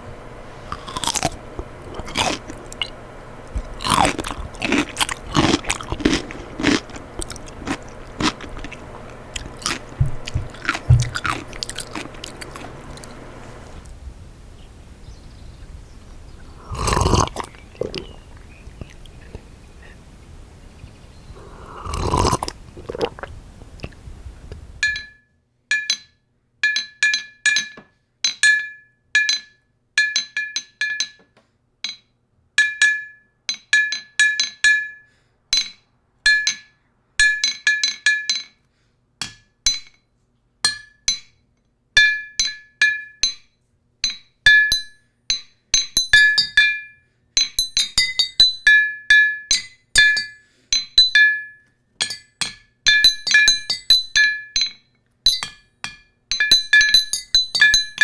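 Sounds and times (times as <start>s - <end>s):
utensil clinking on glass: 44.0s - 58.0s.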